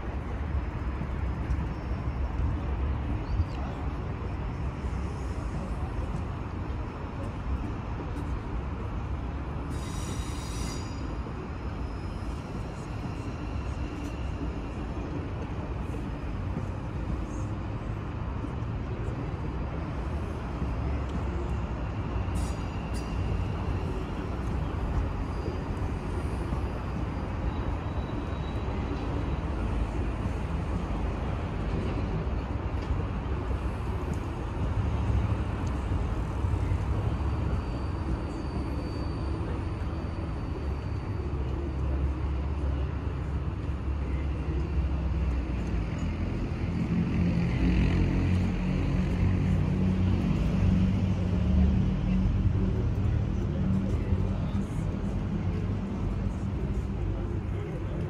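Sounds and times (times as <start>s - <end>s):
train rumbling: 0.0s - 58.0s.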